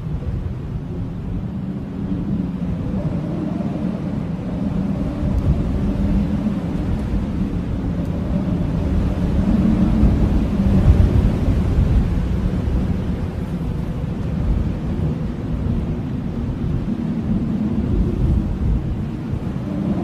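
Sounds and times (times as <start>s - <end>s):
blizzard wind howling: 0.0s - 20.0s.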